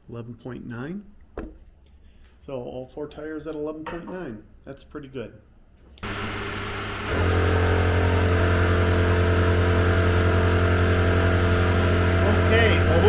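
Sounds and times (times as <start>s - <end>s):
air compressor motor humming: 6.0s - 13.0s.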